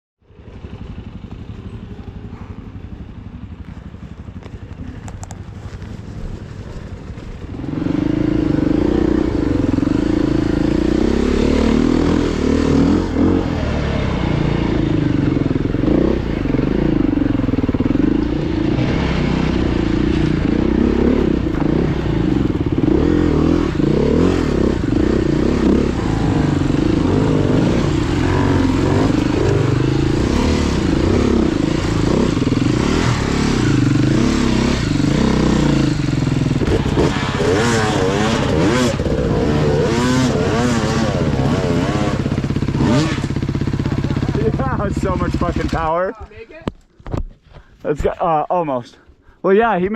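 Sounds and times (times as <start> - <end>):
dirt bike engine: 0.2 - 49.9.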